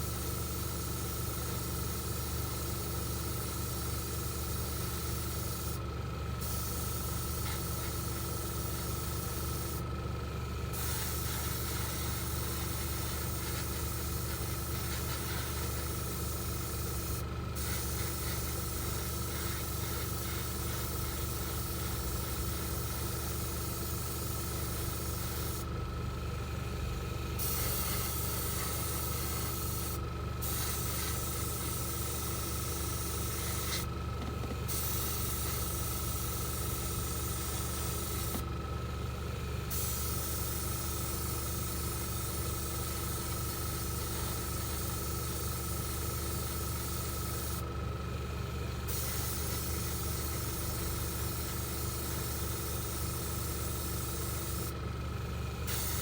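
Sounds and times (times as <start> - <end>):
paint spraying hiss: 6.4 - 9.8, 10.7 - 25.7, 27.4 - 33.9, 34.7 - 38.4, 39.7 - 47.6, 48.9 - 54.7, 55.7 - 56.0.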